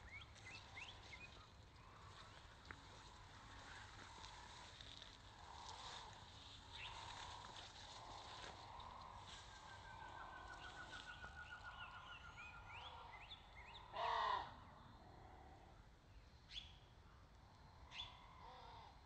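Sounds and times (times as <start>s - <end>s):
loud harsh bird call: 13.9s - 14.6s.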